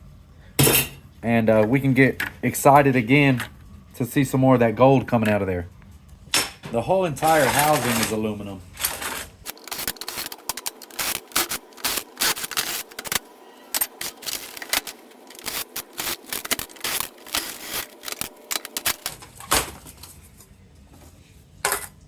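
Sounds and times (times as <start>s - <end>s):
tools and parts clattering: 6.4s - 20.2s.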